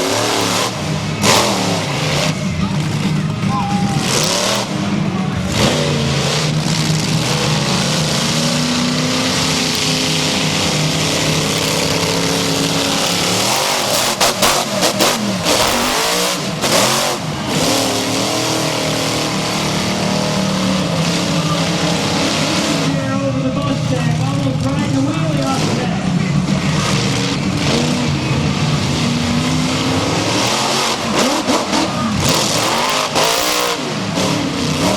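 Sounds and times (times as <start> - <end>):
arena crowd noise: 0.0 - 34.9
truck engine revving: 0.0 - 34.9
sharp bangs: 5.6 - 22.9.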